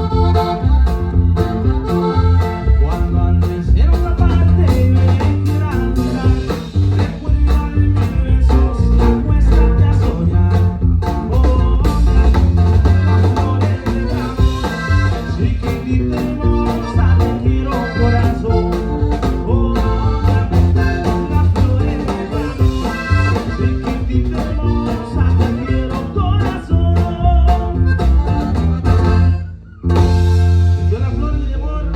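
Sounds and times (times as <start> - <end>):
accordion: 0.0 - 31.9
drums: 0.0 - 31.9
electric bass: 0.0 - 31.9.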